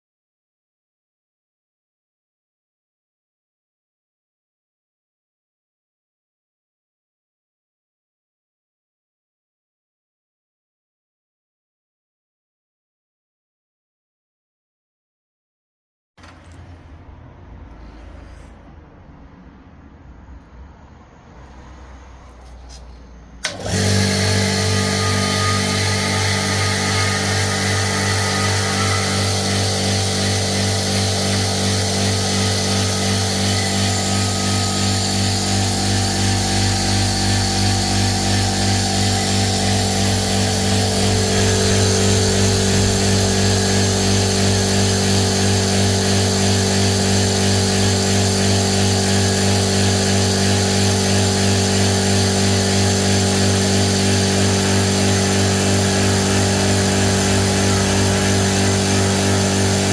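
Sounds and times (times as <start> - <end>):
motor humming with slight pulse: 23.5 - 59.9.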